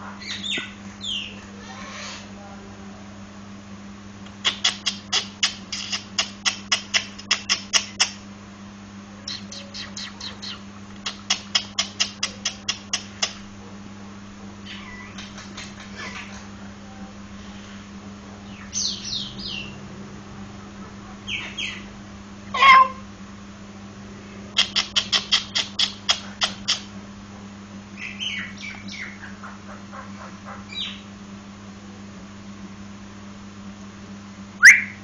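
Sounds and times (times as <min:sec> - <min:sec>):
myna whistled and harsh calls: 0:34.6 - 0:35.0.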